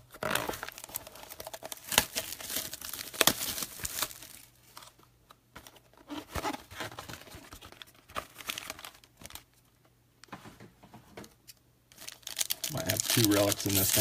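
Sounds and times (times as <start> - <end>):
plastic wrapping tearing and crumpling: 0.1 - 4.6, 7.2 - 9.5, 11.9 - 14.0.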